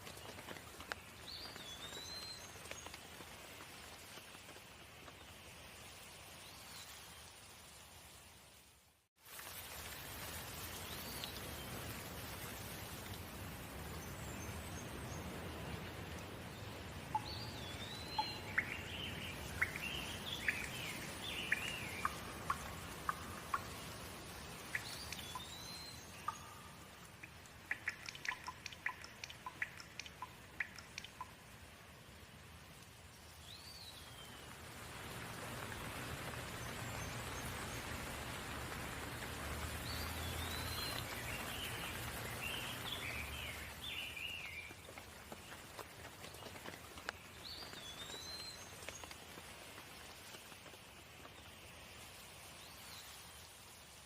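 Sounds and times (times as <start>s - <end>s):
sharp water drips: 0.0s - 8.6s, 9.2s - 54.0s
rain falling: 0.0s - 54.0s
birds chirping: 17.1s - 31.4s.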